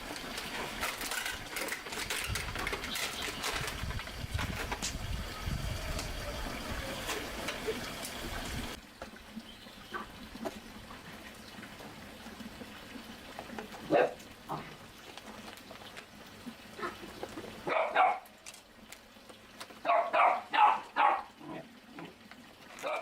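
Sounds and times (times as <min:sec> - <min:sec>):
dog barking: 0:13.9 - 0:14.6, 0:17.7 - 0:18.3, 0:19.8 - 0:21.4.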